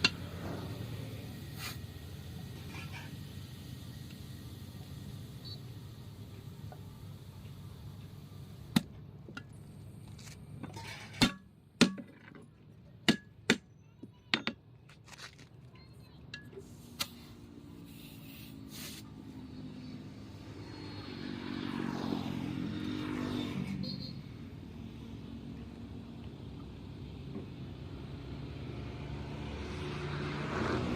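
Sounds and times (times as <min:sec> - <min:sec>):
passing vehicle engine hum: 0:00.0 - 0:10.6, 0:16.8 - 0:30.9.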